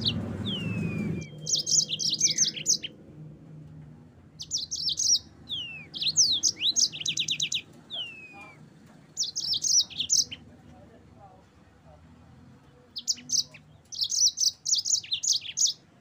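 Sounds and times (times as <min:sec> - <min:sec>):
canary singing trills: 0:00.0 - 0:03.1, 0:04.4 - 0:10.6, 0:12.8 - 0:16.0.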